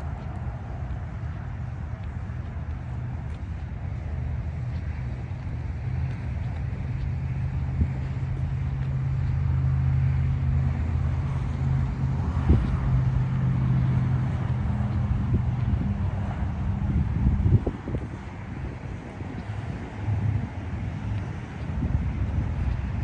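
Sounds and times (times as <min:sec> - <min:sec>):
tractor diesel engine running: 0:00.0 - 0:17.3.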